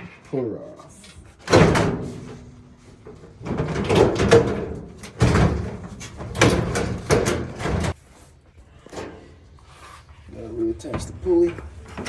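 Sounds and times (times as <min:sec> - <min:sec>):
sheet-metal panel scraping and clunking: 0:01.3 - 0:08.0.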